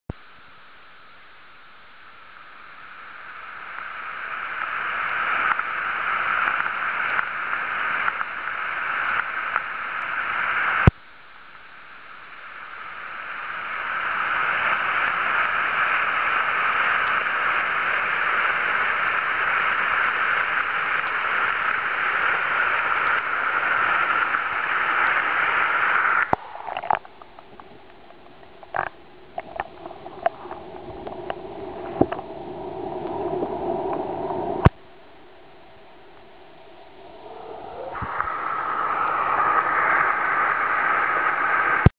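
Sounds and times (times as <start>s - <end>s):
water gurgles and pops: 0.0s - 41.9s
underwater waterfall rush: 0.1s - 41.9s.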